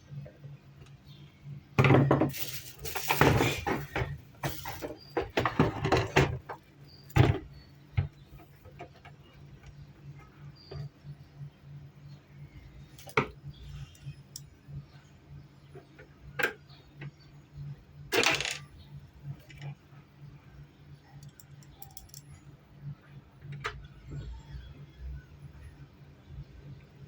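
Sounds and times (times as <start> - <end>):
metallic clinks and knocks: 21.2 - 22.4.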